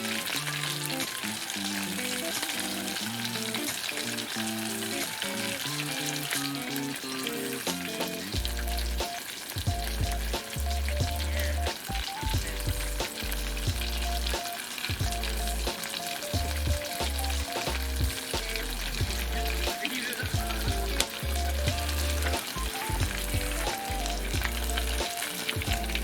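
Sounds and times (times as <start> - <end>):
crackling sizzle: 0.0 - 26.0
synth music with bass line: 8.3 - 26.0.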